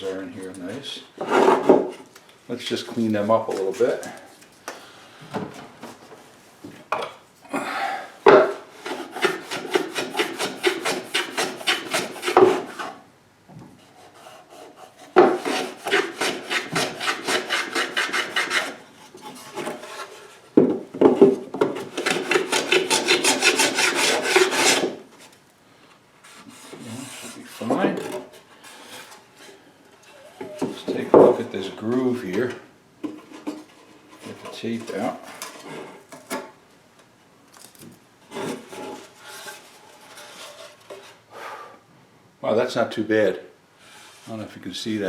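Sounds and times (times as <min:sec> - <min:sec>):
hand sanding wood: 0:08.8 - 0:13.0, 0:13.8 - 0:20.3, 0:21.8 - 0:25.0.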